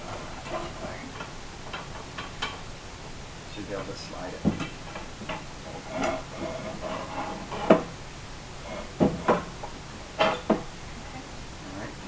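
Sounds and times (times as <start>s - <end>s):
clamp scraping along metal rail: 5.6s - 7.9s.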